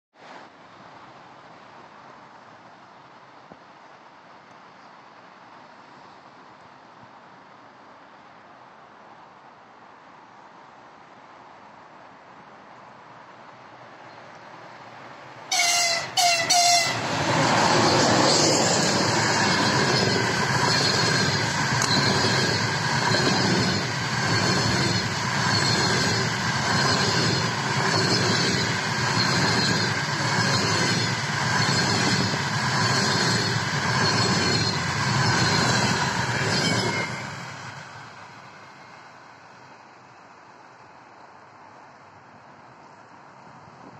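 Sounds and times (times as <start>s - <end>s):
train passing at speed: 11.6s - 43.9s
locomotive horn blasts: 15.5s - 17.2s.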